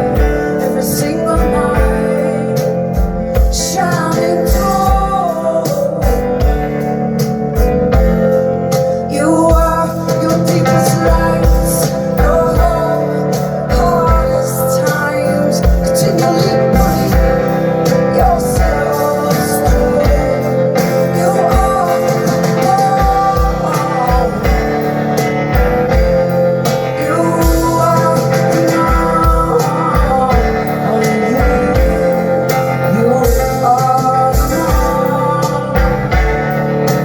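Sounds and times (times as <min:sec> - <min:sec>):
electric guitar: 0:00.0 - 0:37.0
steady kick drum beat: 0:01.3 - 0:08.7, 0:15.6 - 0:37.0.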